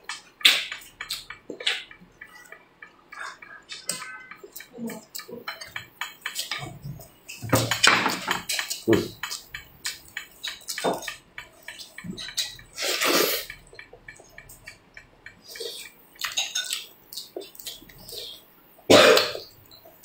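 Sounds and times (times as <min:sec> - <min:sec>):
wet chewing and lip-smacking: 0:00.1 - 0:20.0
slurping and sucking: 0:12.4 - 0:13.6.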